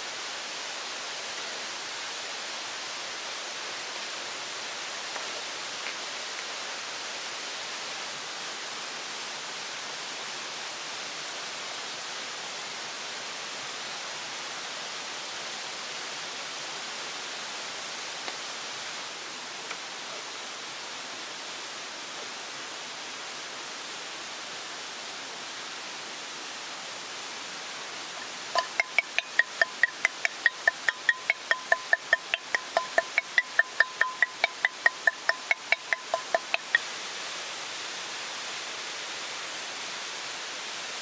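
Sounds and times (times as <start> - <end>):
falling water hissing: 25.4 - 41.0
faint ticks: 28.2 - 36.8.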